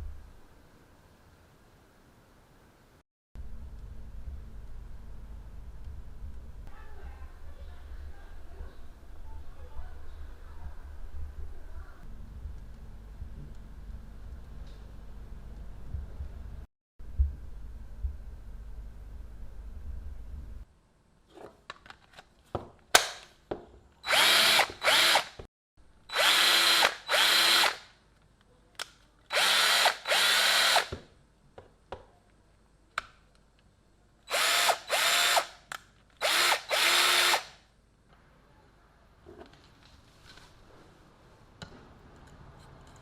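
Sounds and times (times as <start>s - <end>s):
low hum: 3.4s - 20.7s
cordless drill motor whining: 24.0s - 25.3s, 26.1s - 27.8s, 29.3s - 30.9s, 34.3s - 35.5s, 36.2s - 37.4s.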